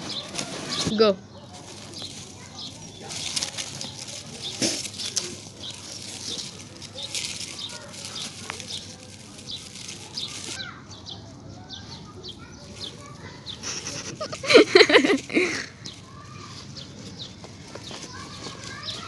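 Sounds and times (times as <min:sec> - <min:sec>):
light rustling: 0:00.0 - 0:10.6
small birds chirping: 0:00.0 - 0:19.0.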